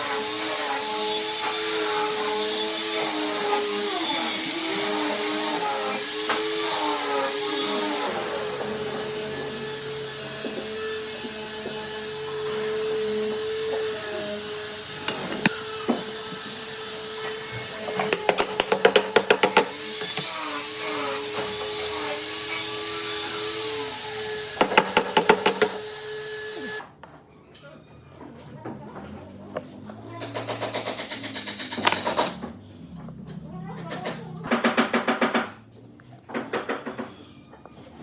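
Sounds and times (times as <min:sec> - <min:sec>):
electric motor humming: 0:00.1 - 0:26.8.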